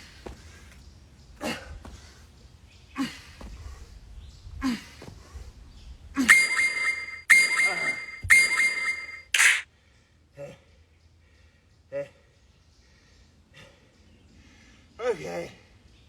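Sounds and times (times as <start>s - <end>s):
loud beeps: 6.3s - 9.6s.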